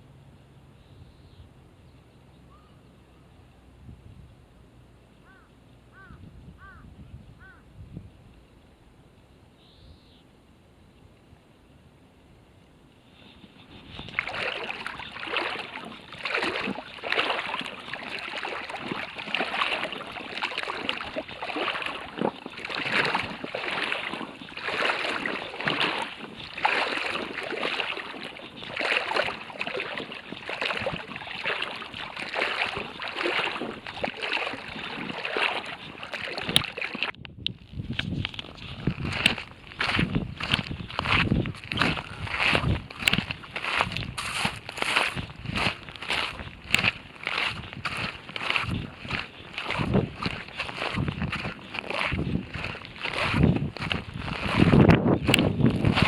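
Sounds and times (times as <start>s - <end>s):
footsteps with swishing: 13.6s - 37.1s, 38.4s - 56.0s.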